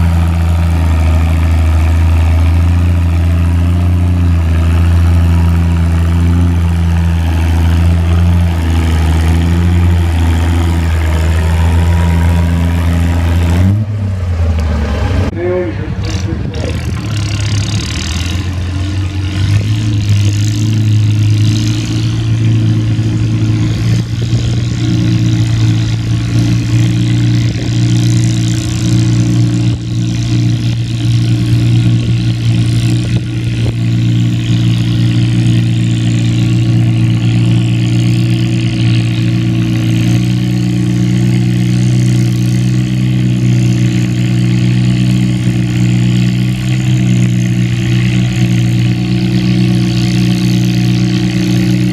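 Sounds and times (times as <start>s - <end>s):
tractor engine running: 0.0s - 51.9s.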